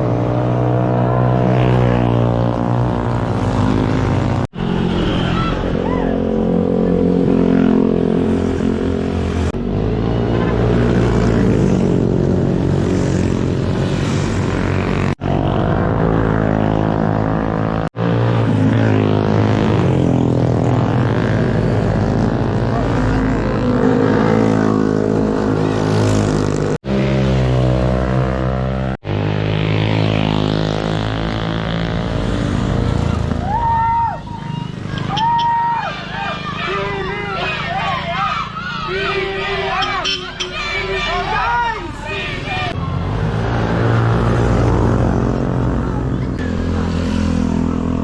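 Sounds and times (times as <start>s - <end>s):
motorcycle engine revving: 0.0s - 33.5s, 42.3s - 48.0s
wind and road noise: 0.0s - 48.0s.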